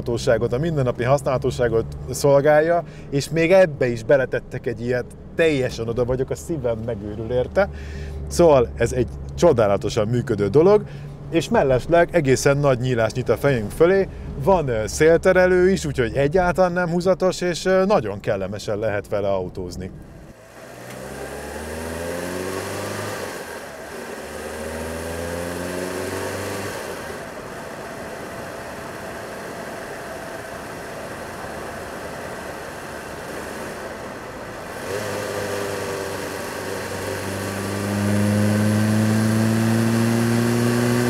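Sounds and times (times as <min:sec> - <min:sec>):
car engine revving through gears: 0:20.0 - 0:41.0.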